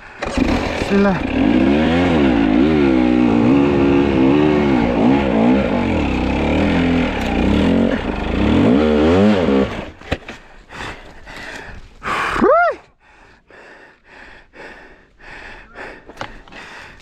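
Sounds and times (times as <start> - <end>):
dirt bike engine revving: 0.2 - 10.1.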